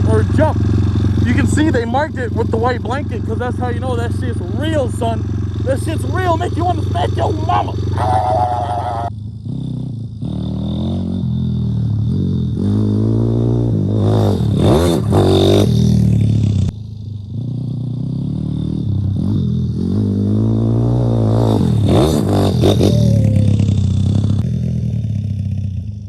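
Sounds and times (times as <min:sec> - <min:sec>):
motorbike engine revving: 0:00.0 - 0:25.7.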